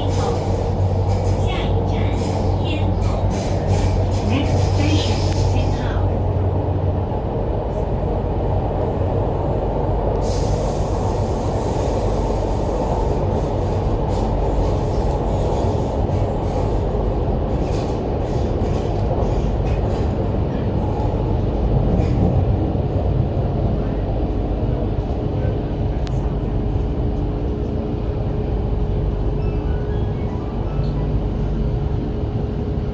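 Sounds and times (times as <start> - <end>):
metro train wheels rumbling: 0.0 - 32.9.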